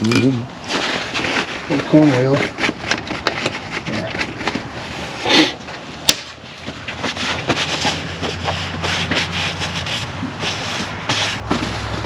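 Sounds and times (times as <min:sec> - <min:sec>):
hand tools clicking and knocking: 0:00.0 - 0:04.7.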